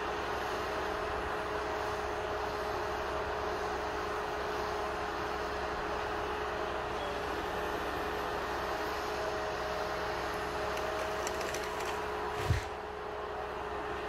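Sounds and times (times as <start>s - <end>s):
heavy machine engine humming: 0.0s - 14.0s.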